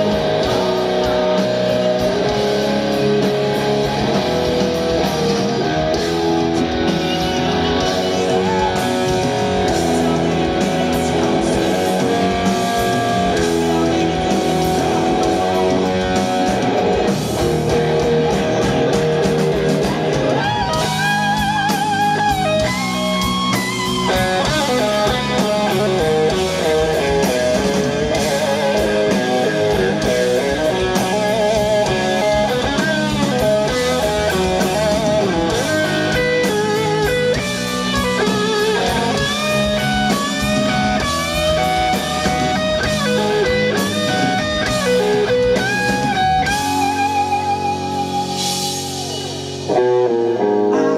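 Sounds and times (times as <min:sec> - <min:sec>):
electric guitar: 0:00.0 - 0:50.9
live rock band: 0:00.0 - 0:50.9
wavering lead guitar notes: 0:00.0 - 0:50.9.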